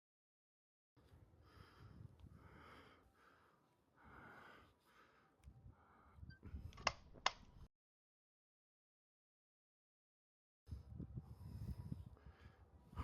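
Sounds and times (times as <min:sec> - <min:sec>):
person breathing in soft puffs: 0:01.0 - 0:06.6, 0:10.8 - 0:13.0
sharp clicks: 0:06.7 - 0:07.6.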